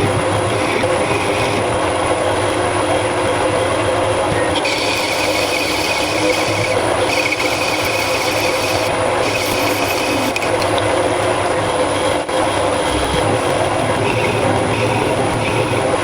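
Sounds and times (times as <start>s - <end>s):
machine tool cutting metal: 0.0s - 1.9s, 4.3s - 10.8s.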